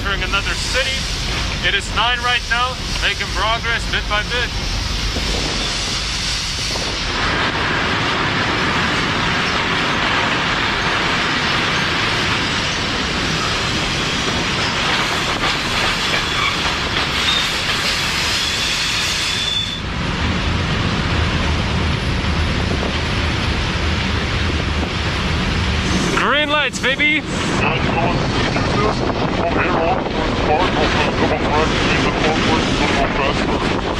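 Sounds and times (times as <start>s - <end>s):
train wagons rumbling and rattling: 0.0s - 33.9s
high wheel squeal: 16.0s - 19.9s.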